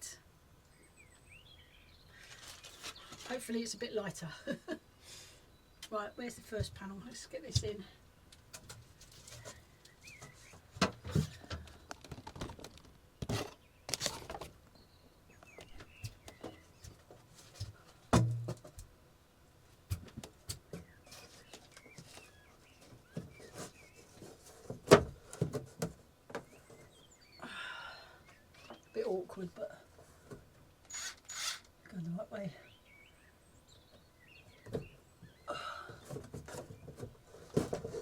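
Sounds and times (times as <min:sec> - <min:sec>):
shed panel knocks and scrapes: 0:12.3 - 0:14.6, 0:17.4 - 0:18.8, 0:23.0 - 0:26.5, 0:36.2 - 0:38.0.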